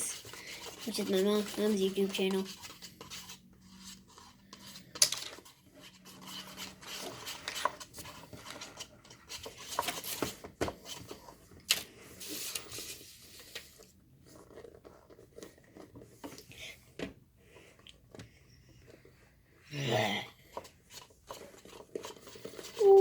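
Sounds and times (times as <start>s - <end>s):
utensils rubbing and scraping: 0.0s - 10.1s.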